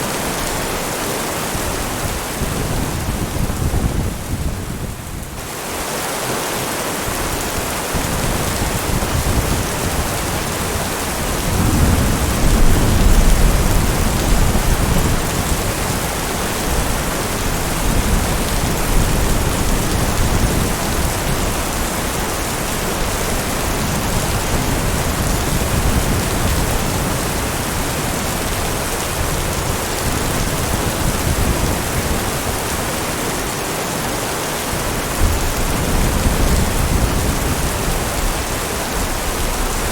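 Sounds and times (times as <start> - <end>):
heavy rain: 0.0 - 39.9
thunder rumbling: 7.9 - 33.5, 35.0 - 39.9.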